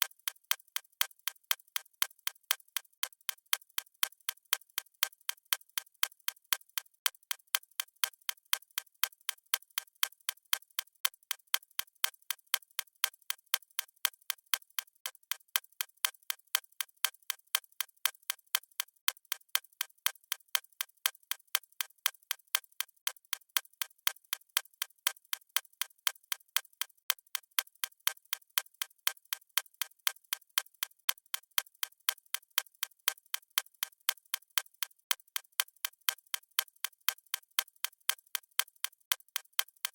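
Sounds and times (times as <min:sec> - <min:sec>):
clock ticking: 0:32.1 - 0:39.9.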